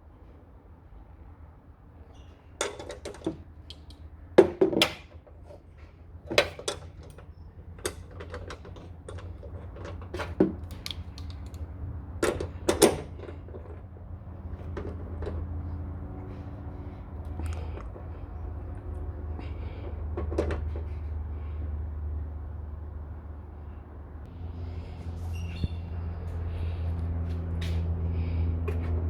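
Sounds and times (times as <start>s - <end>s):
low steady hum: 10.6s - 29.0s.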